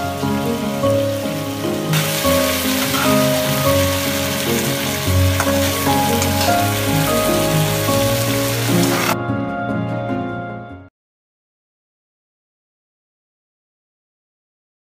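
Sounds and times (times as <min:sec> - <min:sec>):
food sizzling in a wok: 0:00.0 - 0:09.2
soft background music: 0:00.0 - 0:10.9.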